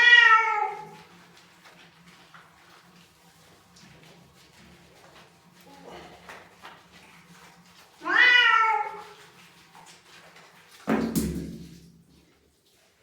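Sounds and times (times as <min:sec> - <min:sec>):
cat meowing: 0:00.0 - 0:00.9, 0:08.0 - 0:09.1.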